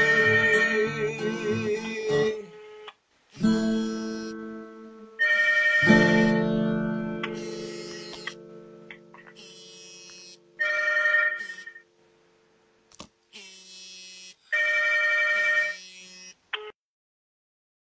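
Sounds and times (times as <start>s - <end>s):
telephone ringing: 5.2s - 6.5s, 10.6s - 11.9s, 14.5s - 15.8s.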